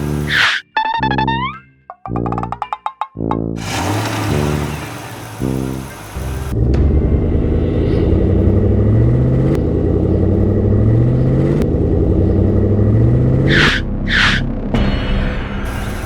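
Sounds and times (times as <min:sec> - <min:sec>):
heavy vehicle engine revving: 0:03.6 - 0:14.7.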